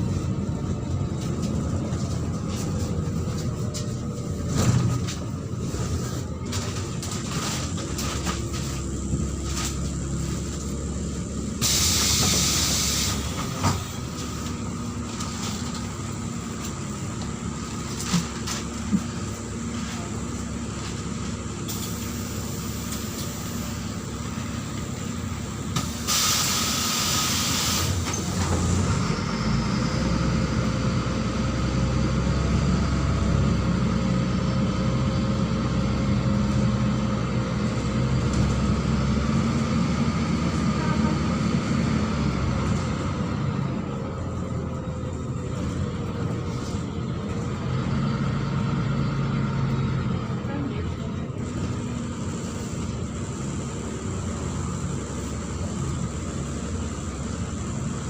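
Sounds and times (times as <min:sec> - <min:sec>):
bus engine idling: 0:00.0 - 0:58.0
compressed air hiss: 0:11.6 - 0:13.3, 0:25.8 - 0:28.0.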